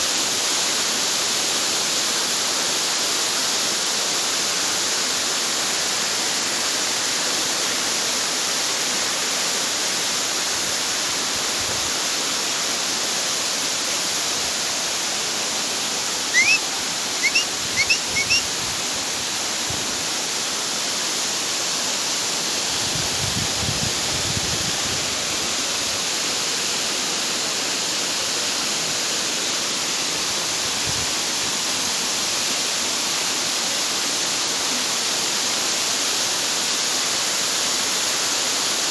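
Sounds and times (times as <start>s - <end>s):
rushing falling water: 0.0s - 38.9s
short rising chirps: 16.3s - 18.4s.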